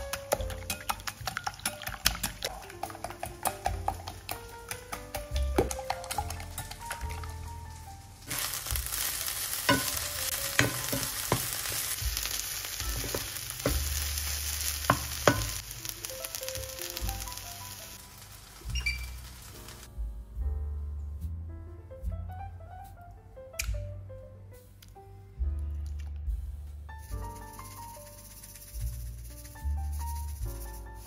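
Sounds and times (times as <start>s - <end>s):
wooden spatula knocking on pan: 0.0s - 6.6s, 10.6s - 12.2s, 12.9s - 14.0s, 14.9s - 15.6s
food sizzling in oil: 0.0s - 19.9s.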